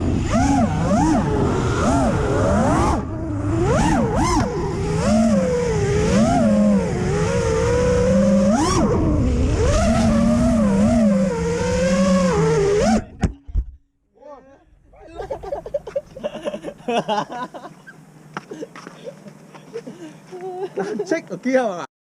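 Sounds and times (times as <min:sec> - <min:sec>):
drone motors whining: 0:00.0 - 0:13.4.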